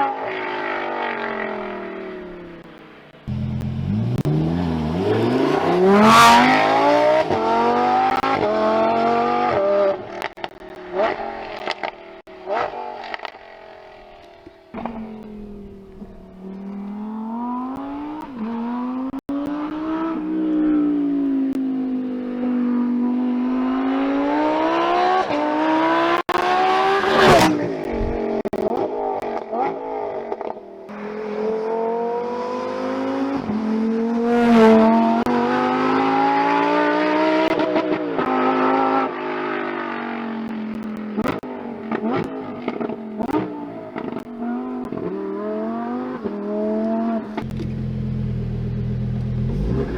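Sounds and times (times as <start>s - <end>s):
exhaust pops and crackles: 2.5s - 6.6s, 10.0s - 17.0s, 26.2s - 30.6s, 40.5s - 45.1s, 47.2s - 49.9s
sports car engine revving: 3.3s - 13.4s, 41.2s - 49.9s
gear change crack: 10.1s - 17.0s, 47.3s - 49.9s.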